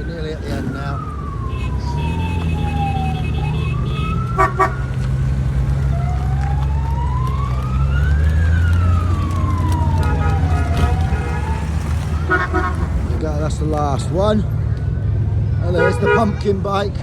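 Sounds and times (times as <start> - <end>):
siren wailing: 0.0 - 13.2
motorcycle engines rumbling: 0.0 - 17.0.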